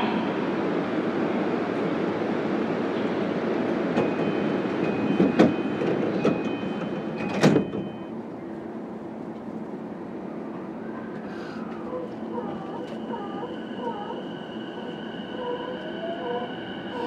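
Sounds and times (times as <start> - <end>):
sliding train doors closing: 2.9 - 8.1
two-tone door chime: 4.0 - 8.1.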